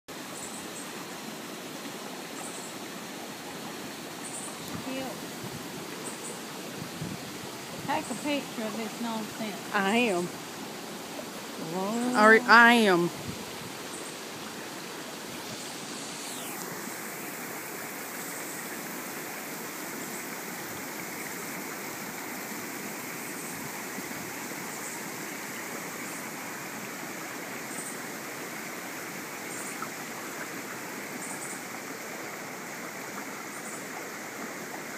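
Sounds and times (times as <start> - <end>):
floodwater rushing: 0.1 - 34.9.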